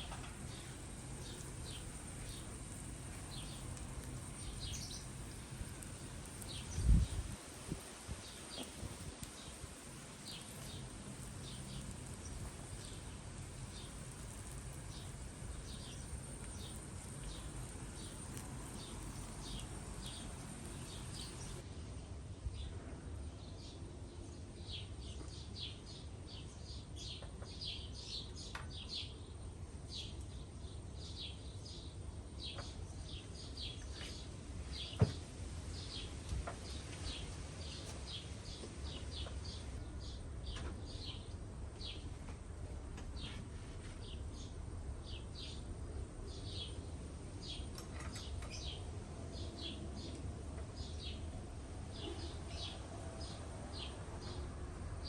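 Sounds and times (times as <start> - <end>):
small birds chirping: 0.0 - 21.6, 43.2 - 54.6
low background hiss: 0.0 - 27.1.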